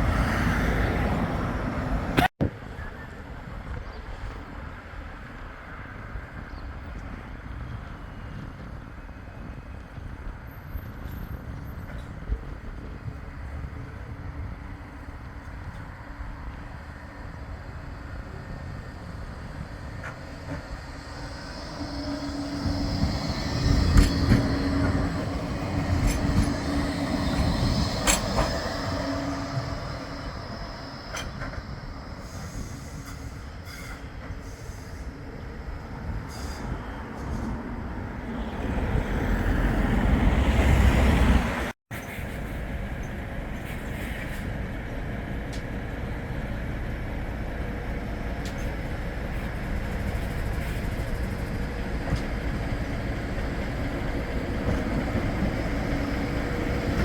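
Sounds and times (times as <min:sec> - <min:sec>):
tram running on track: 0:00.0 - 0:57.0.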